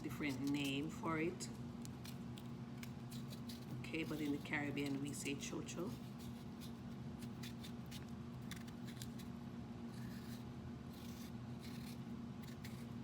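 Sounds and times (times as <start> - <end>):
low electrical hum: 0.0 - 13.0
blade scraping vegetable: 3.1 - 5.2, 9.9 - 13.0.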